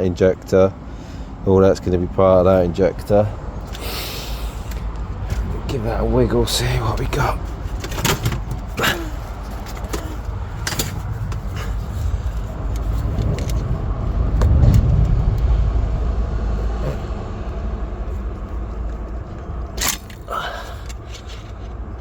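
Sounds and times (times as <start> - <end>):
steady low rumble: 0.0 - 22.0
tools and parts clicking: 7.6 - 13.6, 19.7 - 22.0.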